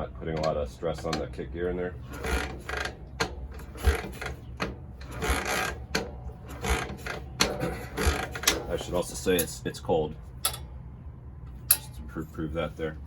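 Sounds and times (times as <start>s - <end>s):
motorcycle kick lever and gears clattering: 0.3s - 1.4s, 2.2s - 9.6s, 10.4s - 10.7s, 11.6s - 12.0s
engine turning over without firing: 2.0s - 8.9s.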